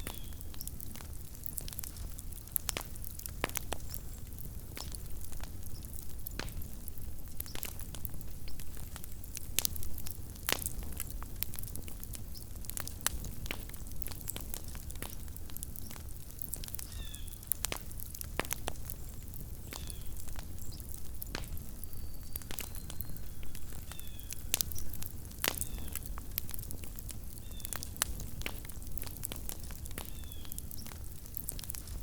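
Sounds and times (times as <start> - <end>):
campfire crackling: 0.0 - 32.0
faint high chirps: 21.8 - 23.5.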